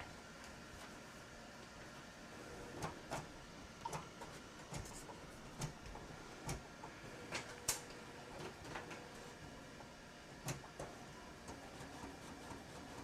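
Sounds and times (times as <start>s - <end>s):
printer clicks and ticks: 2.8s - 9.2s, 10.4s - 13.0s.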